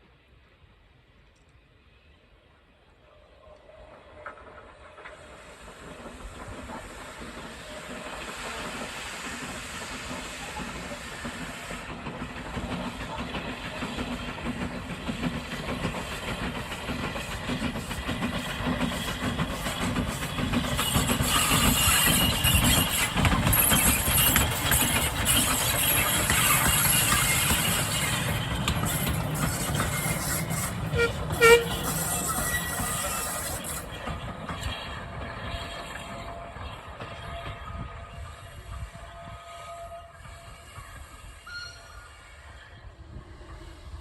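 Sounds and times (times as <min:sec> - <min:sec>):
hiss of steam: 0:03.0 - 0:35.0
steam locomotive rumble: 0:03.4 - 0:44.0.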